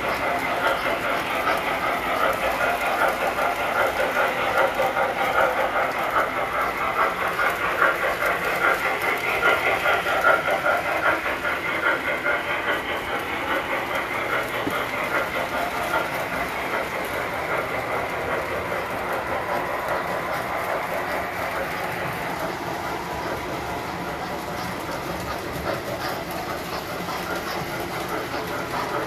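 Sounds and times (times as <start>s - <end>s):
toy train wheels clattering on track: 0.0s - 29.0s.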